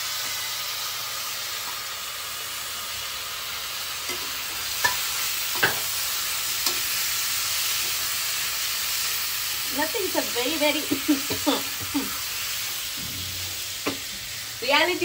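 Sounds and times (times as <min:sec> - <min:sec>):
tomatoes sizzling in hot oil: 0:00.0 - 0:15.0
spoon knocking against pan: 0:05.6 - 0:05.9.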